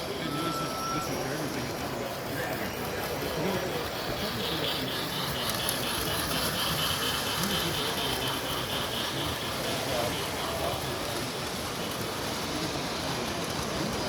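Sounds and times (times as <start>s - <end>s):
model trains running: 0.0s - 14.0s
fast rhythmic clicking: 2.2s - 14.0s.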